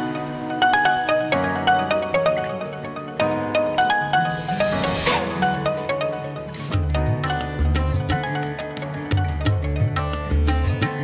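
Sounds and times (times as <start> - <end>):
plucked note melody: 0.0 - 11.0
cymbal-like swell: 4.1 - 6.7.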